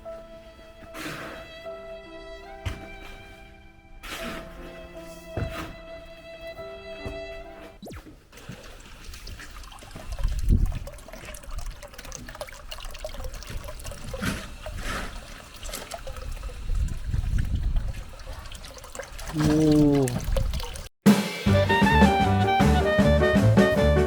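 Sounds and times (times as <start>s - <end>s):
water trickling and pouring: 8.3s - 20.9s.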